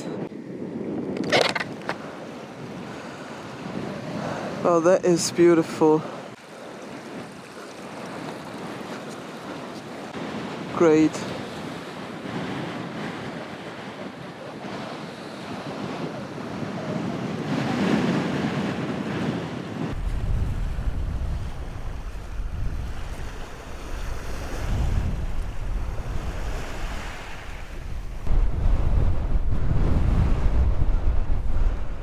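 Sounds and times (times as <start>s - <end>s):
wind buffeting microphone: 0.0s - 5.0s, 5.8s - 32.0s
strong wind rushing: 12.1s - 32.0s.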